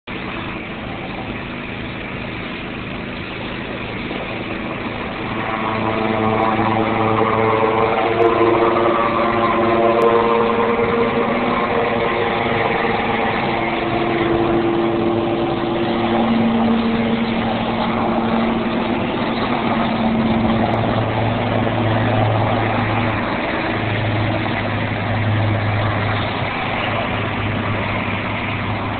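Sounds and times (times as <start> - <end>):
helicopter turbine and rotor: 0.1 - 28.9.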